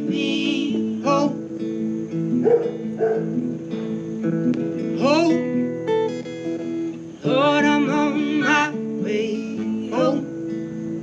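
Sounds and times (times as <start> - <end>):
person singing: 0.0 - 1.5, 4.9 - 5.6, 7.2 - 10.7
acoustic guitar strumming: 0.0 - 11.0.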